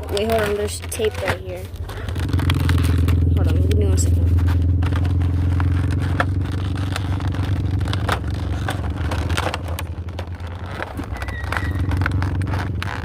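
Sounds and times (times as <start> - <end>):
low mechanical hum: 0.0 - 13.0
plastic packaging crinkling: 0.0 - 13.0
tape peeling: 0.0 - 13.0.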